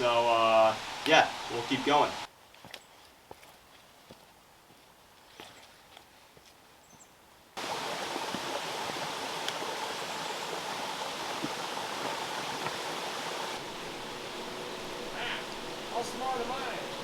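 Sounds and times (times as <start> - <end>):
stream water rushing: 0.0 - 2.3, 7.6 - 17.0.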